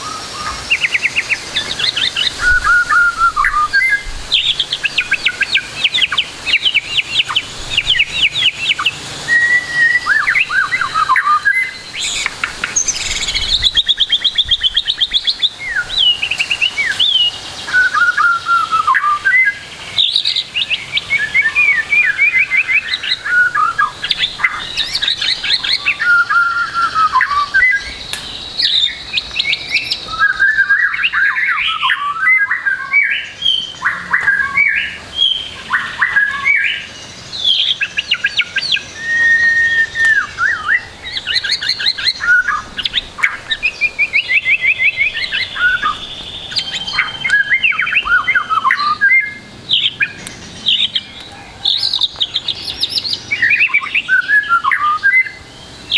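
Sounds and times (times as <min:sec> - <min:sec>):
songbird singing varied song: 0:00.0 - 0:55.9.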